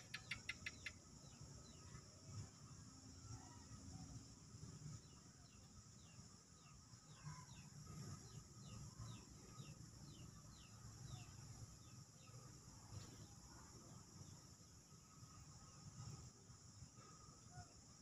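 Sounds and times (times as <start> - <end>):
low steady background: 0.0 - 18.0.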